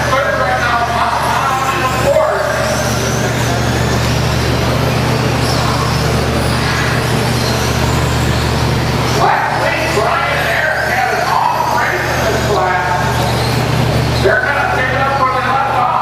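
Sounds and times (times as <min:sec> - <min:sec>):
steady low hum: 0:00.0 - 0:16.0
electric motor whine: 0:00.8 - 0:15.4.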